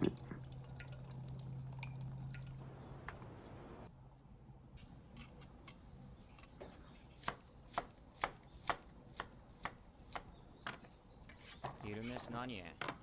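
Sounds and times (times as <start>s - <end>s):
knife chopping on cutting board: 7.2s - 10.3s.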